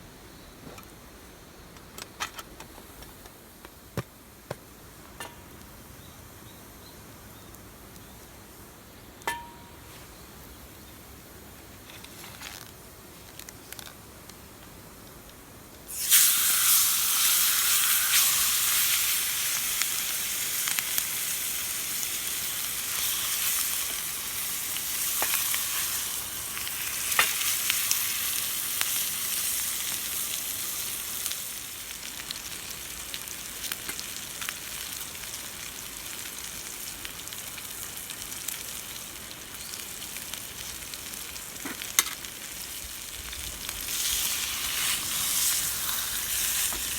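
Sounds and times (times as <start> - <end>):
food sizzling in a hot pan: 15.9 - 46.9.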